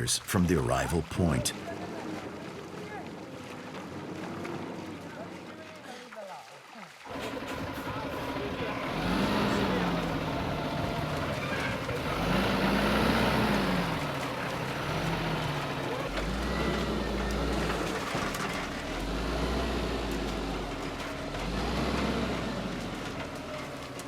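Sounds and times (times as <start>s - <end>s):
truck engine revving: 7.1s - 24.0s.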